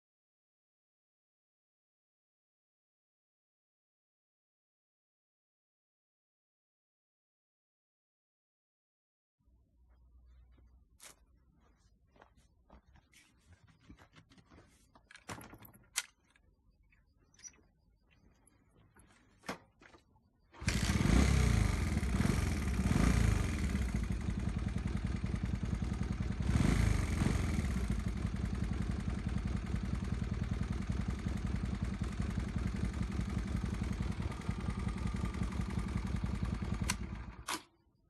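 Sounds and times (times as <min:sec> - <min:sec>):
motorcycle engine starting and idling: 0:17.3 - 0:38.0.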